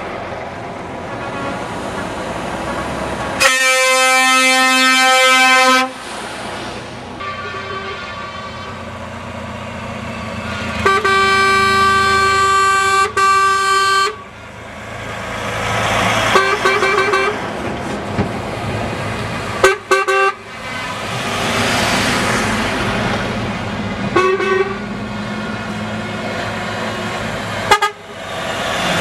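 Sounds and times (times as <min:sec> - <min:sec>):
trucks driving past: 0:00.0 - 0:29.0
truck horn blasts: 0:01.1 - 0:01.7, 0:02.6 - 0:06.0, 0:07.2 - 0:08.9, 0:10.4 - 0:14.3, 0:16.3 - 0:17.4, 0:19.6 - 0:21.1, 0:24.1 - 0:24.9, 0:27.7 - 0:28.1.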